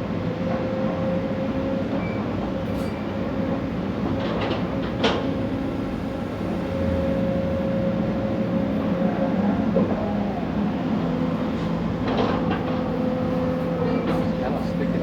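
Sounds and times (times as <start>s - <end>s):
hydraulic whine: 3.7s - 9.2s
excavator diesel engine running: 3.7s - 9.5s.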